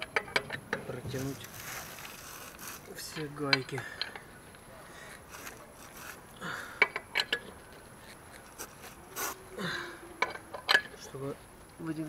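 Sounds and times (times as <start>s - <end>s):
rustling: 0.9s - 3.5s, 4.9s - 6.4s, 7.5s - 9.5s.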